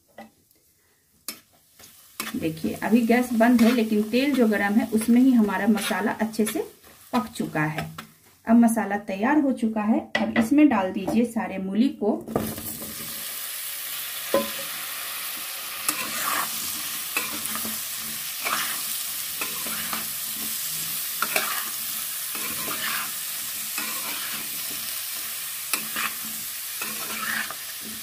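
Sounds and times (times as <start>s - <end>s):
radish sizzling in hot oil: 0.0s - 8.5s, 12.3s - 28.0s
metal spatula scraping a pan: 2.1s - 7.3s, 15.8s - 28.0s.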